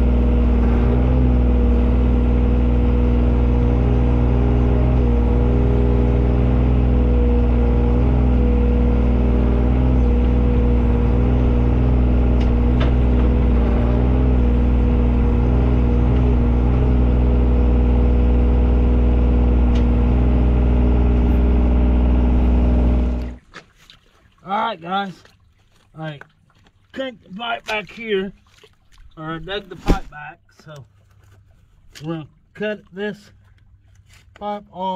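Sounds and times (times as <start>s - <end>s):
digging machine engine running: 0.0s - 23.4s.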